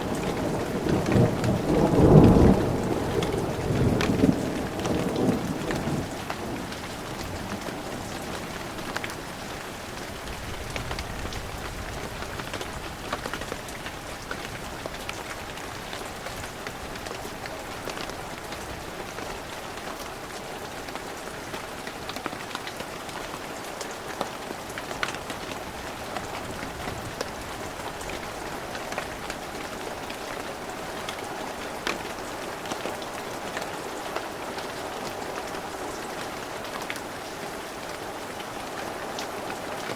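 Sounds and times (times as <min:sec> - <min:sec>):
low thunder rumble: 0:00.0 - 0:09.2
heavy rain falling: 0:00.0 - 0:39.9
raindrops ticking close by: 0:00.0 - 0:39.9.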